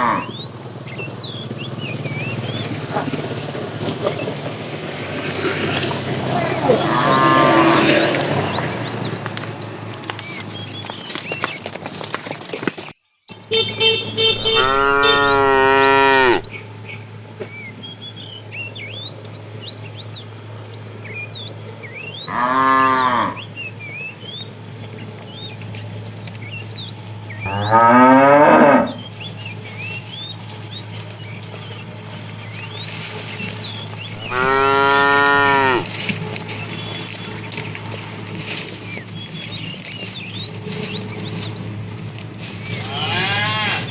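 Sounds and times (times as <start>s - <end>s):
cattle mooing: 0.0s - 0.4s, 5.0s - 9.1s, 14.2s - 16.5s, 22.2s - 23.5s, 27.4s - 29.2s, 33.2s - 38.7s, 42.6s - 43.9s
small birds chirping: 0.0s - 43.9s.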